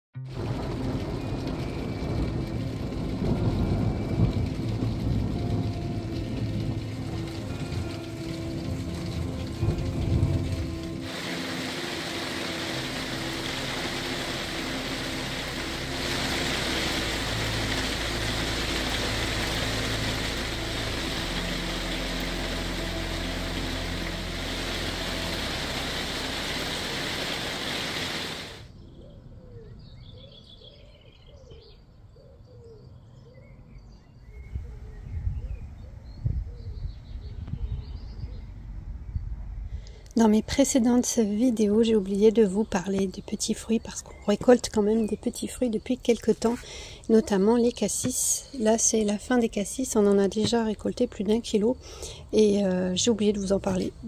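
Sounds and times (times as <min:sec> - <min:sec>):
heavy rain: 0:00.2 - 0:28.7, 0:39.9 - 0:54.0
birds chirping: 0:40.7 - 0:54.0.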